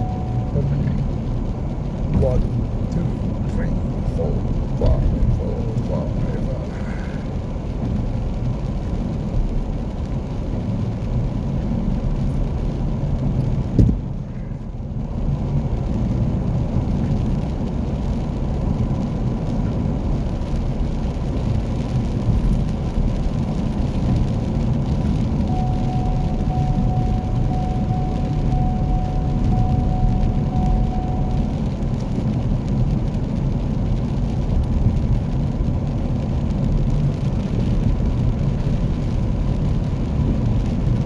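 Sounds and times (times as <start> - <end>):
car engine and tyres rumbling: 0.0 - 41.0
thump: 13.8 - 14.0.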